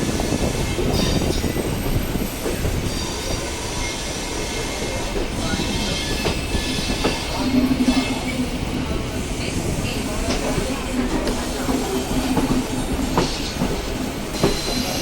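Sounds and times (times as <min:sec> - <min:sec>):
train wheels rumbling: 0:00.0 - 0:15.0
high wheel squeal: 0:02.8 - 0:08.3, 0:14.3 - 0:15.0.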